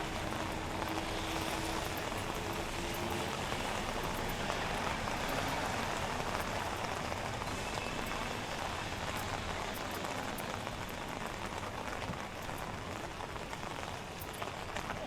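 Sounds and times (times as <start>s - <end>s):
rain drop ticks: 0.0s - 15.0s
steady rain hiss: 0.0s - 15.0s.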